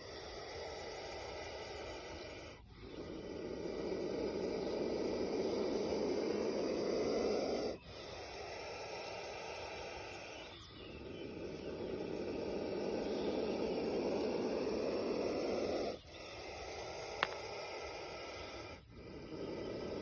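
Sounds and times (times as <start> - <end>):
snake hissing: 0.0 - 20.0.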